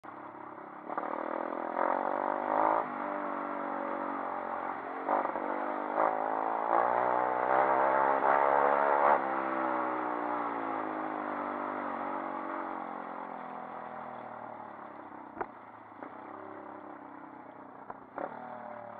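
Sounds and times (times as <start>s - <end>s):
motorbike engine revving: 0.8s - 13.4s, 17.8s - 18.9s.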